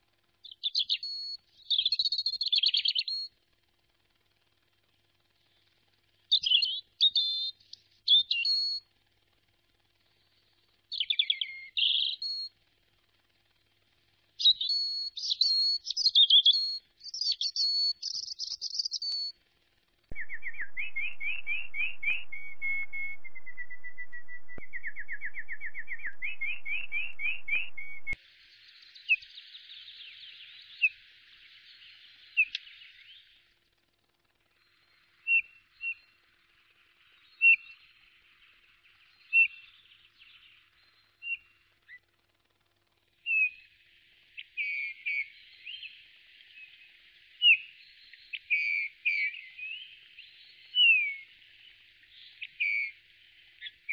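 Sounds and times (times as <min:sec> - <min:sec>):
birds chirping: 0:20.1 - 0:33.5
bird whistling rising notes: 0:20.2 - 0:28.2.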